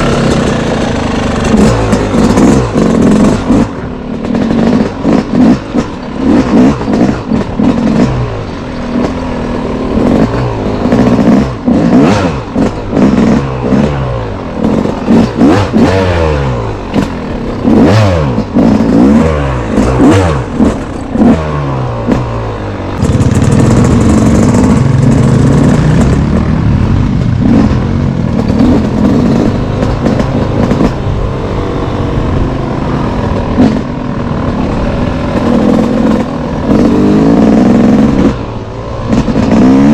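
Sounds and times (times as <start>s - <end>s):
off-road engine revving: 0.0s - 39.9s
knocks and rattles: 27.2s - 31.1s.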